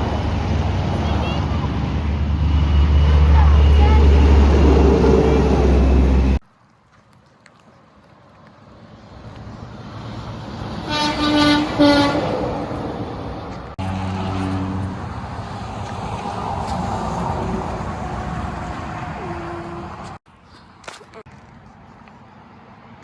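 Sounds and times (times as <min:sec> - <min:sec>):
heavy truck engine droning: 0:00.0 - 0:06.4, 0:09.6 - 0:20.2
truck air horn blasts: 0:10.8 - 0:12.4.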